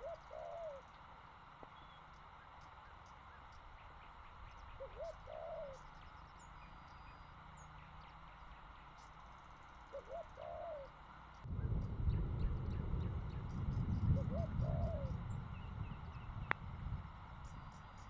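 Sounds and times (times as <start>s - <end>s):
bird calling: 0.0s - 16.6s, 17.3s - 18.0s
loud low rumble: 11.4s - 17.8s.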